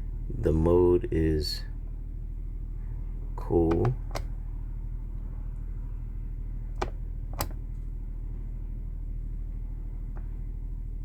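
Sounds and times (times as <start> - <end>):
diesel generator droning: 0.0 - 11.0
thermostat button clicks: 3.7 - 4.4, 6.8 - 7.6.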